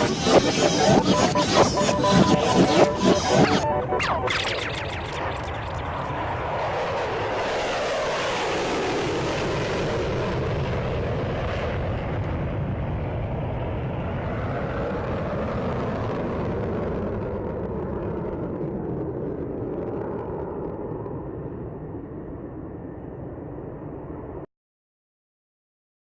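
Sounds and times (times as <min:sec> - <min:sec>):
jet aircraft roaring past: 0:00.0 - 0:18.6.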